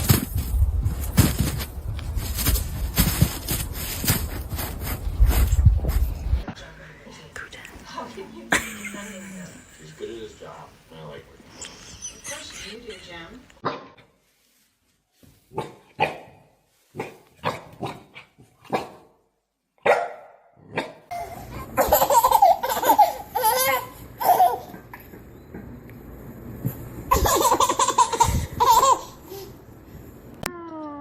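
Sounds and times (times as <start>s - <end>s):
loud laughter: 8.5s - 10.1s
dog barking: 15.6s - 16.4s, 17.0s - 18.0s, 18.6s - 19.0s, 19.8s - 21.0s.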